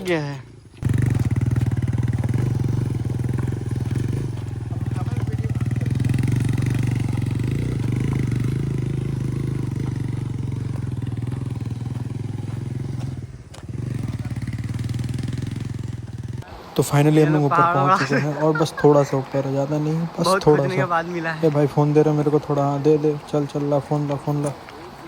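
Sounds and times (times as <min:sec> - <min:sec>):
motorcycle engine running: 0:00.0 - 0:16.5.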